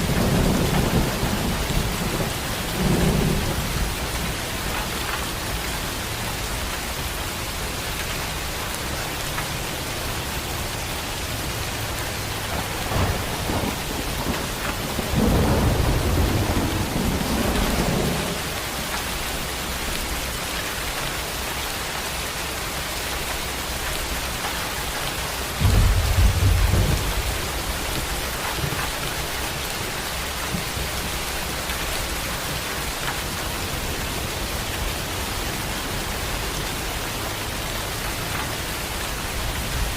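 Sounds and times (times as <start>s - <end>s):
thunder rumbling: 0.0s - 6.2s, 12.0s - 19.5s, 25.5s - 32.2s
heavy rain falling: 0.0s - 39.9s.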